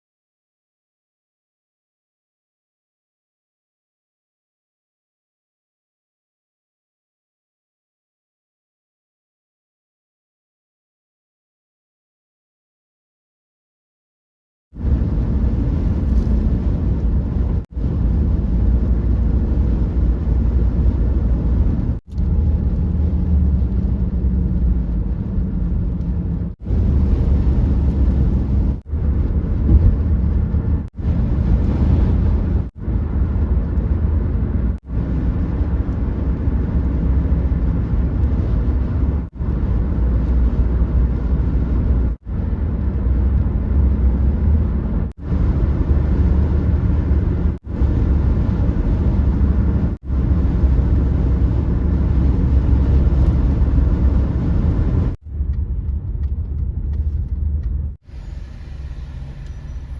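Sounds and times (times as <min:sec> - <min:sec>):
low rumbling noise: 0:14.8 - 0:59.9.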